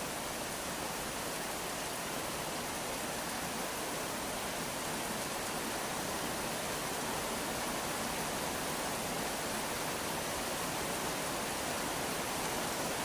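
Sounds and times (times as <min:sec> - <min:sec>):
steady rain hiss: 0:00.0 - 0:13.0.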